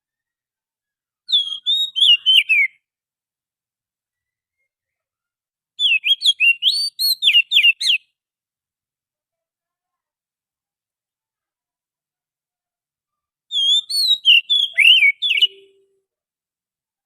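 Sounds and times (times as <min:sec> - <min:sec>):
bird singing whistled notes: 0:01.3 - 0:02.8, 0:05.8 - 0:08.1, 0:13.5 - 0:16.0.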